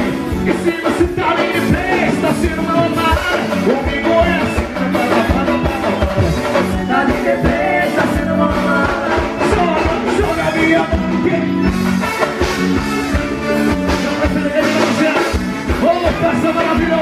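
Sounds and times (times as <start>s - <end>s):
person singing: 0.0s - 11.7s
dance band playing live: 0.0s - 17.0s.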